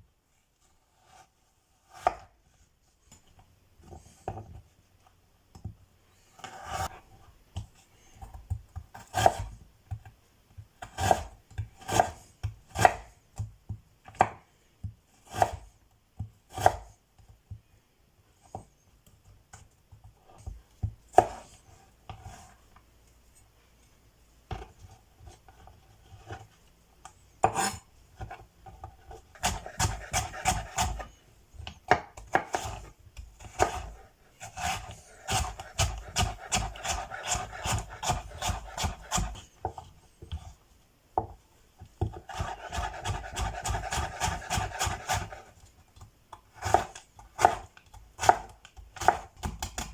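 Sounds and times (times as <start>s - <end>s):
knife chopping on cutting board: 8.8s - 9.6s, 10.8s - 14.4s, 15.2s - 16.9s, 20.4s - 22.5s, 27.4s - 40.5s, 42.0s - 45.5s, 46.6s - 49.9s.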